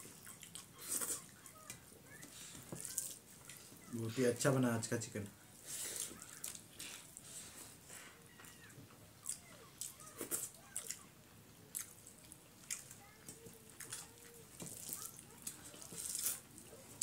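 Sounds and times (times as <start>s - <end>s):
fingers squelching food on plates: 5.6s - 17.0s
wet chewing and lip smacks: 11.7s - 16.4s.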